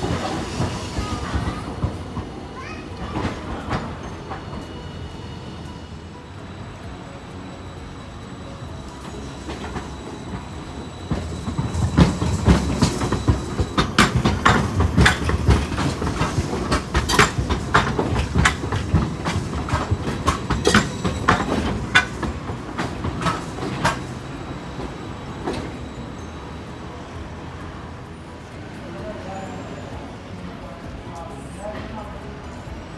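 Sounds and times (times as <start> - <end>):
low tram rumble: 0.0 - 32.9
tram wheels clattering over points: 6.6 - 28.1.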